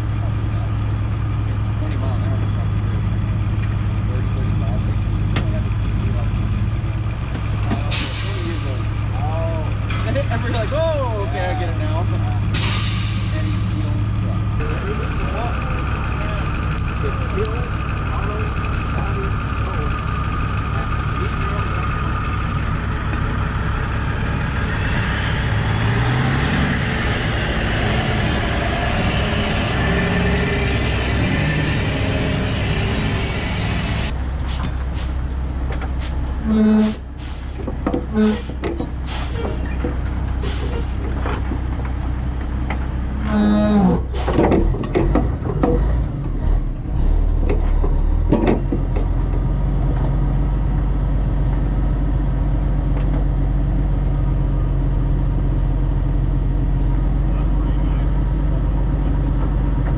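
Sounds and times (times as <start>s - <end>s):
truck diesel engine running: 0.0s - 59.9s
short hisses: 7.9s - 9.0s, 12.6s - 13.8s.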